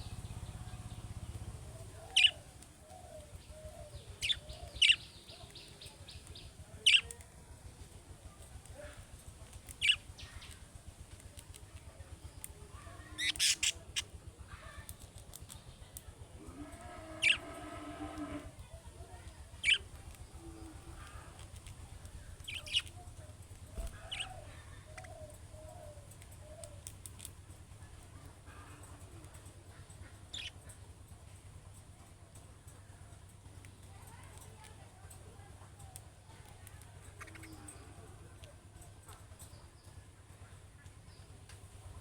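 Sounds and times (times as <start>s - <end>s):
budgerigars chirping: 2.0s - 2.4s, 4.2s - 5.2s, 9.7s - 10.3s, 13.2s - 13.8s, 22.5s - 22.9s, 24.0s - 24.4s, 30.3s - 30.6s.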